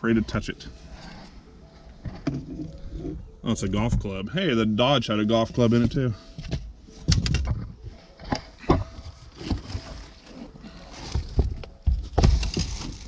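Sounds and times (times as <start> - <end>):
items knocking in car trunk: 11.0 - 13.0.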